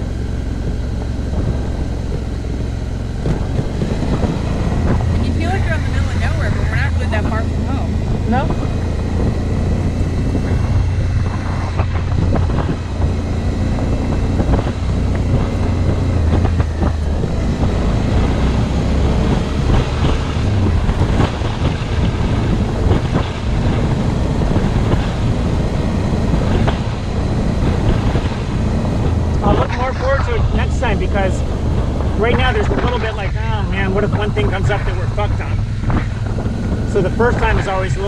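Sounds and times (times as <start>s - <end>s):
motorcycle engine running: 0.0s - 38.0s
motorcycle rattling over bumps: 0.0s - 38.0s.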